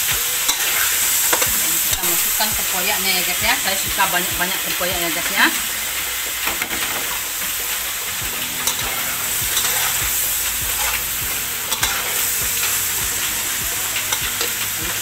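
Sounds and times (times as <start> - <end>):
fish sizzling in a wok: 0.0 - 15.0
metal spatula scraping a pan: 6.0 - 13.6.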